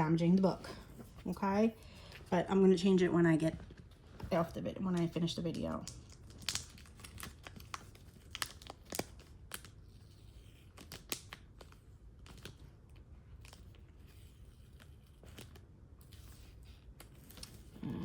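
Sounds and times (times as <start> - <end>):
plastic bag crinkling: 3.9 - 12.7
sticky tape being torn: 5.9 - 12.6.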